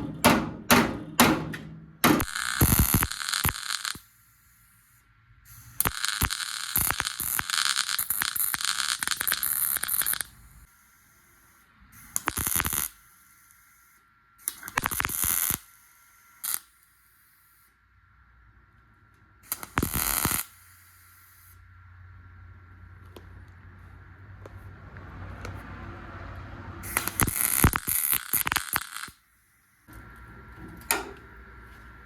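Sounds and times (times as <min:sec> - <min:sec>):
welding arc crackling: 0:02.0 - 0:13.8, 0:14.4 - 0:17.3, 0:19.4 - 0:21.6, 0:26.8 - 0:32.0.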